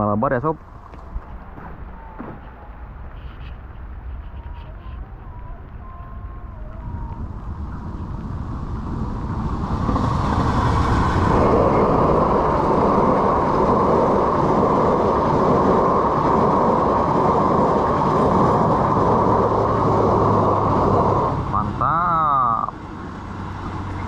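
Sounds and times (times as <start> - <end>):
train wheels running on rails: 5.1 - 24.0.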